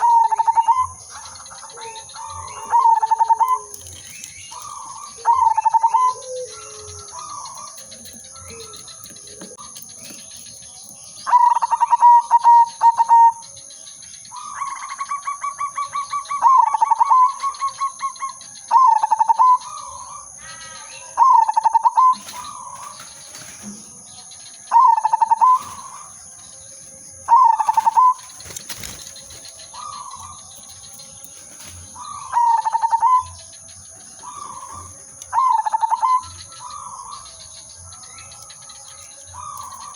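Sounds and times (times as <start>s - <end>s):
dove cooing: 0.0s - 13.5s, 24.7s - 26.2s, 27.2s - 37.5s.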